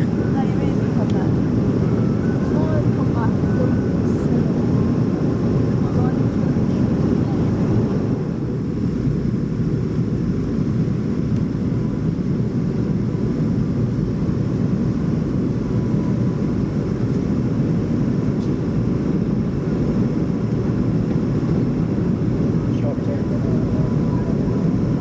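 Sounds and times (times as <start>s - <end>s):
faint steady tones: 0.0s - 9.6s.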